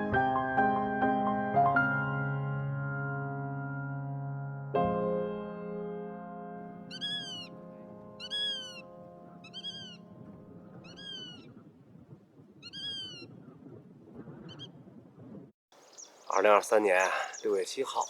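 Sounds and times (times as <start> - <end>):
soft sustained music chord: 2.3 - 10.8.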